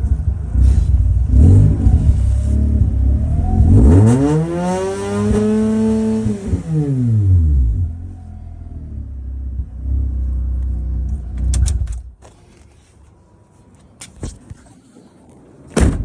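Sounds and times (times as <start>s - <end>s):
rotary engine idling and revving: 0.0s - 12.0s
loud thump: 15.8s - 16.0s.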